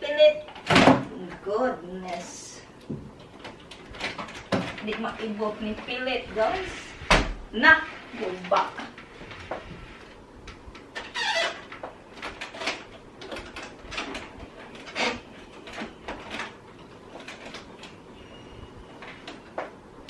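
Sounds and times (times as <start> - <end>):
plastic squeaks and creaks: 10.8 - 19.8.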